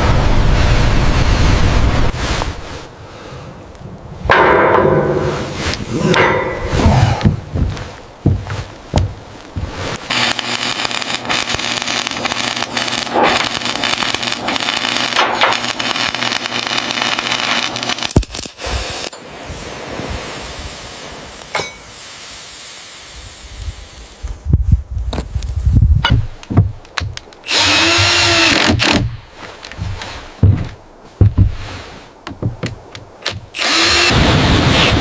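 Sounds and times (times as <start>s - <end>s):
knocks and thumps: 6.1s - 9.9s, 25.9s - 27.3s, 27.9s - 33.5s
power tools cutting wood: 9.9s - 18.2s, 27.4s - 29.1s, 33.2s - 35.0s.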